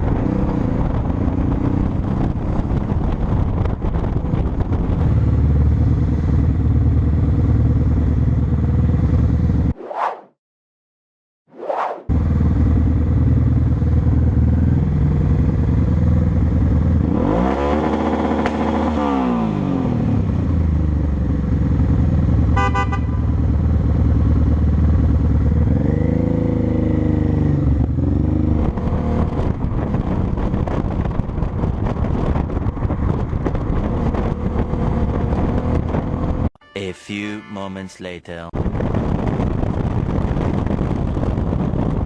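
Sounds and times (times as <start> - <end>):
motorcycle engine revving: 12.1 - 36.5
car horn toot: 22.5 - 23.3, 36.6 - 38.3.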